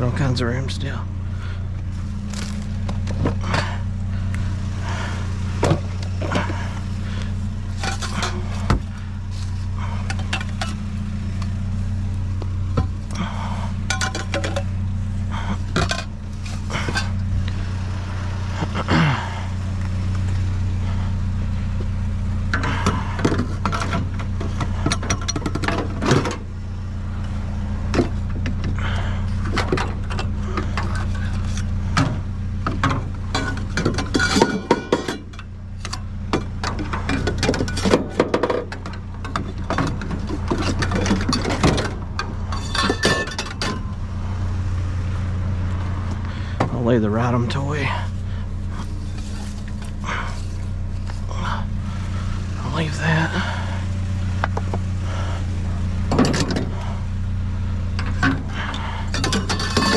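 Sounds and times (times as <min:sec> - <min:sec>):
steady low hum: 0:00.0 - 0:59.9
hard items clinking and clattering: 0:32.7 - 0:43.9, 0:59.1 - 0:59.9.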